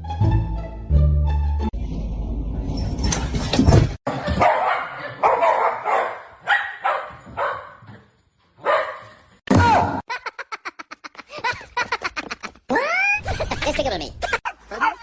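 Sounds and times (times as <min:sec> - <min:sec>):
dog barking: 0:04.1 - 0:08.0, 0:08.6 - 0:09.2.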